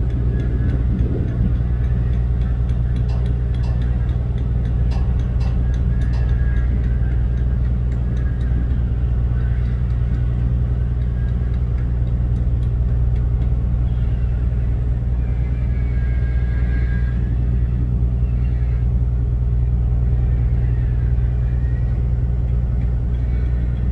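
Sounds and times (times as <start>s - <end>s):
ship machinery drone: 0.0s - 23.9s.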